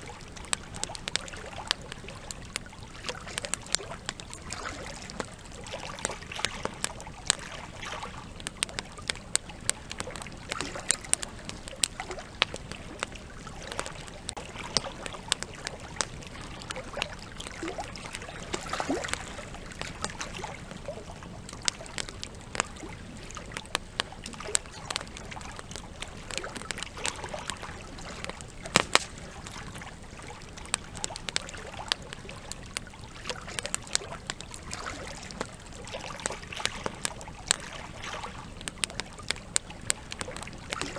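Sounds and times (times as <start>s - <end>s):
wood fire crackling: 0.0s - 40.9s
river flowing: 12.0s - 23.4s.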